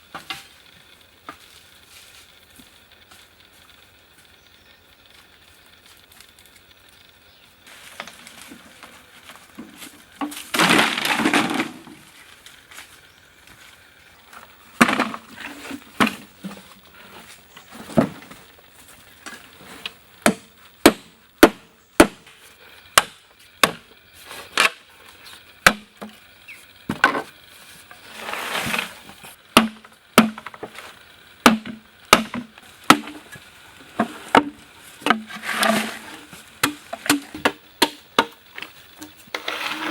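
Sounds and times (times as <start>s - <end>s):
noisy crackling: 0.0s - 39.9s
sharp blows on wood: 20.2s - 22.3s.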